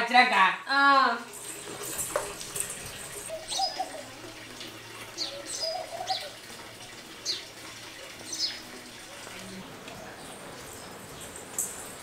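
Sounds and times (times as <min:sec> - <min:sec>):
birds chirping: 0:02.6 - 0:12.0.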